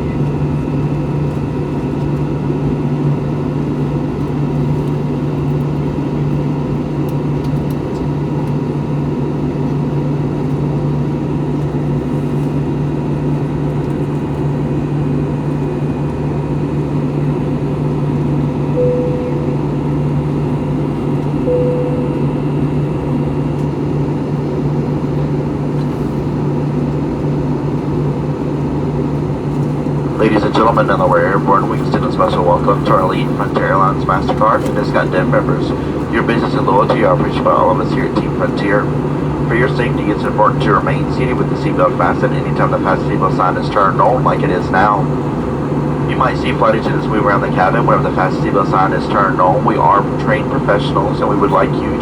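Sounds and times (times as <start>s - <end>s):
jet engines droning: 0.0s - 52.0s
short cabin tones: 18.7s - 20.2s, 21.3s - 22.8s.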